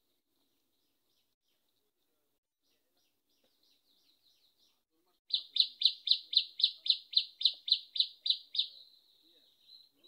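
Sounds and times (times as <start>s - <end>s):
bird chirping sharply: 3.7s - 10.0s.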